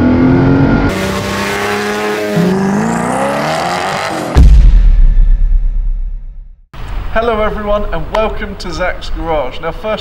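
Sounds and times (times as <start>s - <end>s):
car engine accelerating: 0.0s - 4.4s.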